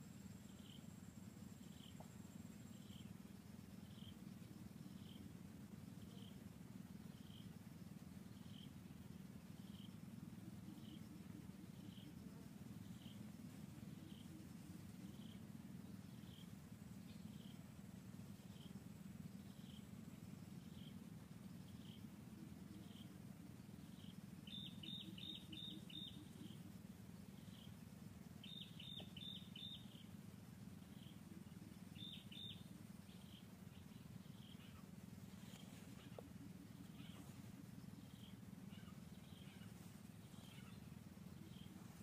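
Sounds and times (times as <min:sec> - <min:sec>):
low steady rumble: 0:00.0 - 0:42.0
small bird chirping: 0:00.0 - 0:42.0.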